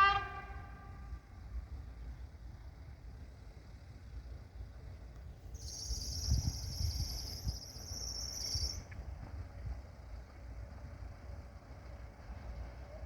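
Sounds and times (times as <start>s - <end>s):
high-pitched insect trill: 5.6s - 8.8s.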